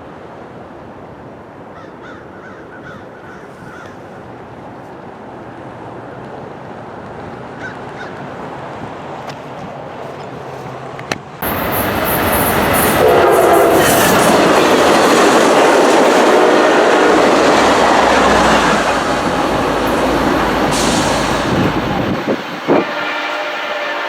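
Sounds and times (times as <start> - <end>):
train wheels rumbling on rails: 6.1 - 24.0.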